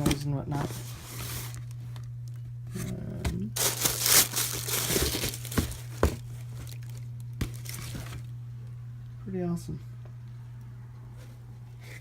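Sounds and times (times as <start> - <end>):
steady low hum: 0.0 - 12.0
shoe packaging crinkling: 3.6 - 8.3.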